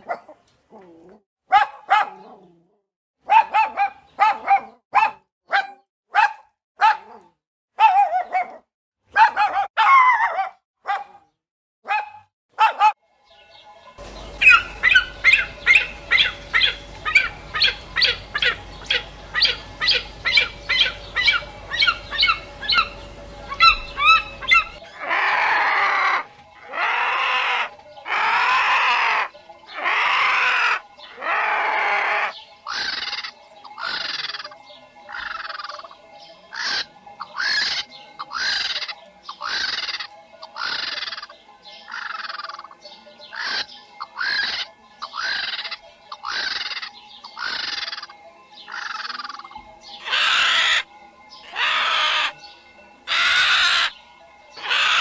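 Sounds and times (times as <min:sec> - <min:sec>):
animal chirping calls: 0:14.0 - 0:52.5, 0:53.1 - 0:54.0, 0:54.6 - 0:55.0.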